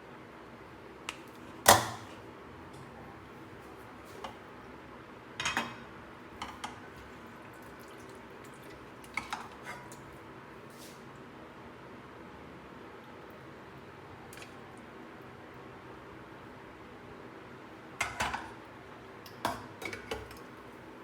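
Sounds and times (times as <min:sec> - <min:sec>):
kitchen exhaust fan humming: 0:00.0 - 0:21.0
utensils clinking against dishes: 0:05.4 - 0:05.8.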